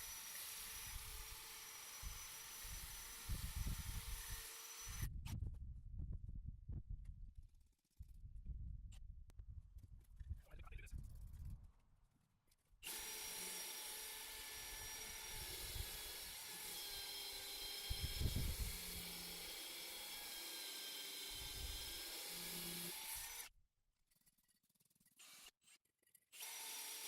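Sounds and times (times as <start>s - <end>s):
power drill grinding into brick: 0.0s - 5.1s, 12.8s - 23.5s, 26.4s - 27.0s.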